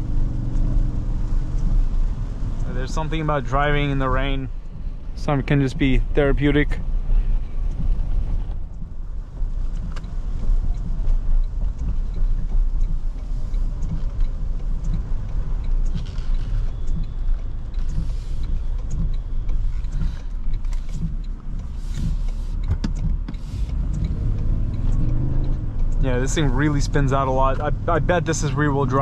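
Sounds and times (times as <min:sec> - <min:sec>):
light ticks: 0:00.0 - 0:29.0
short hissing swishes: 0:23.4 - 0:23.7
pickup truck rumble on wet road: 0:23.5 - 0:29.0.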